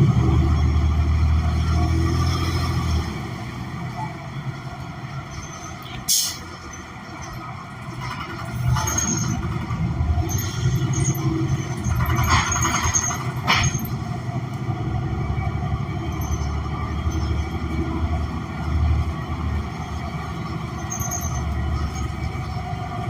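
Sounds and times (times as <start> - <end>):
bus engine rumble: 0.0 - 23.0
air brake hisses: 6.1 - 6.5.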